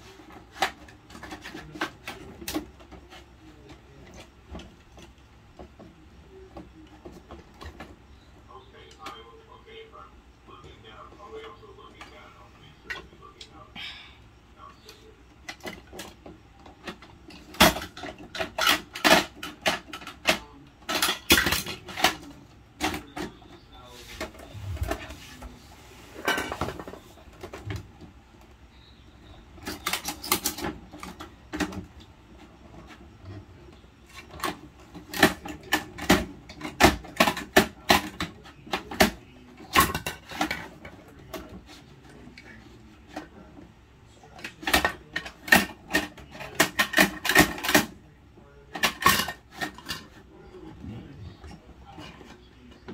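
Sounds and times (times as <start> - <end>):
plastic toys clicking and clattering: 0.0 - 8.0, 14.8 - 25.1, 29.5 - 33.4, 34.0 - 48.0, 48.6 - 52.9.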